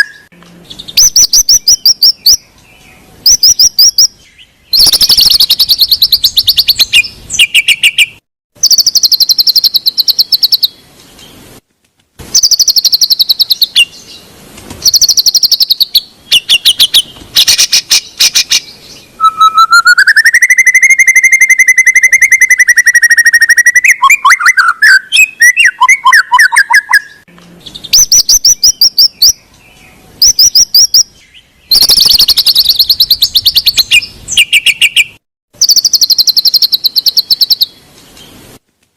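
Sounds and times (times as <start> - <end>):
long rising bird whistle: 4.7 - 10.8, 19.2 - 29.4, 31.7 - 37.8
bird chattering trills: 4.8 - 10.8, 12.3 - 14.1, 14.9 - 29.4.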